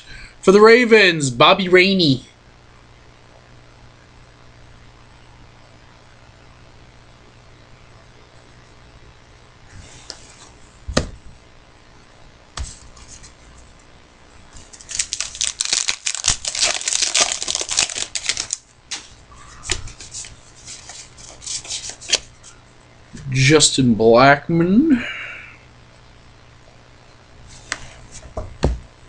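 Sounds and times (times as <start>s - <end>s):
cards being handled: 14.5s - 22.5s, 27.5s - 28.4s
card pack wrapper tearing: 14.6s - 19.1s, 19.7s - 22.3s.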